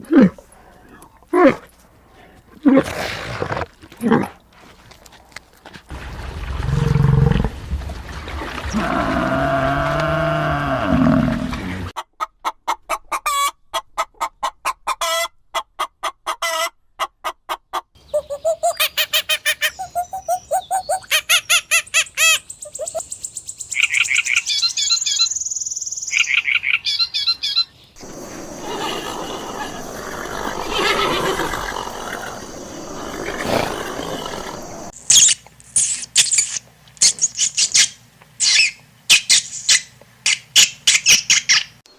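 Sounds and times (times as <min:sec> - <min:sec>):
fowl clucking: 0:12.0 - 0:17.9.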